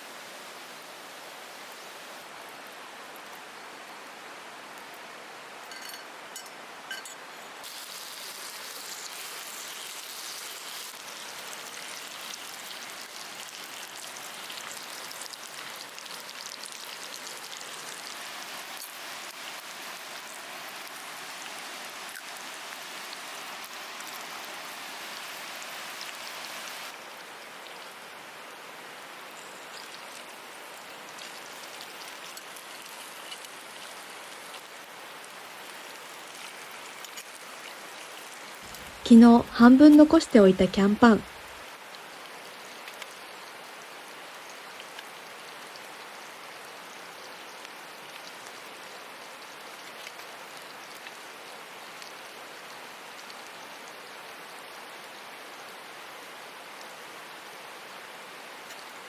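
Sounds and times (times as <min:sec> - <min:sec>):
food sizzling in a skillet: 0:06.9 - 0:27.0, 0:29.3 - 0:39.0.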